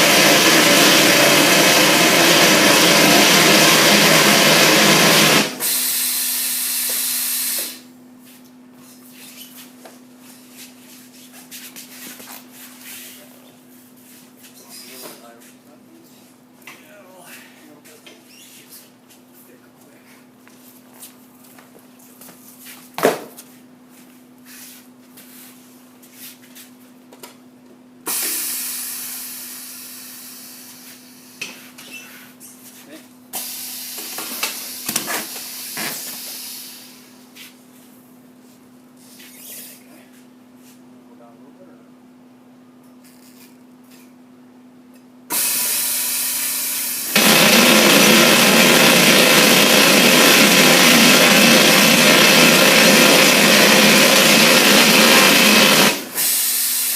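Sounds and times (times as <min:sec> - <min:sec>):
machine running loudly: 0:00.0 - 0:07.0, 0:45.3 - 0:56.9
loud hiss: 0:00.0 - 0:07.9, 0:45.3 - 0:56.9
tire sidewall remover humming: 0:00.0 - 0:07.9, 0:45.3 - 0:56.6.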